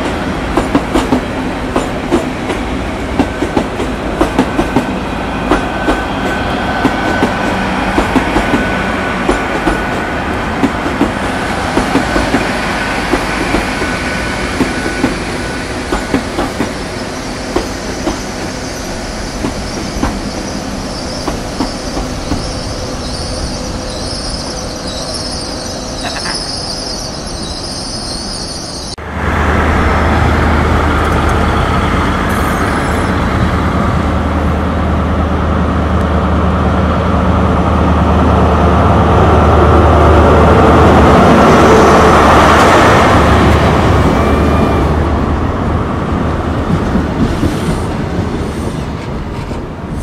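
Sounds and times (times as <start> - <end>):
train wheels clicking on rail joints: 0.0 - 16.8, 19.3 - 20.5, 21.2 - 22.6, 46.6 - 49.8
diesel train engine drone: 0.0 - 50.0
high wheel squeal: 17.0 - 29.0, 32.2 - 33.3.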